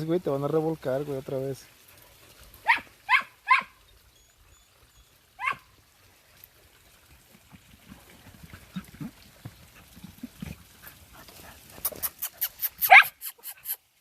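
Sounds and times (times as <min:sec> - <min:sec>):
dog barking: 0:02.6 - 0:03.8, 0:05.4 - 0:05.7, 0:12.8 - 0:13.2.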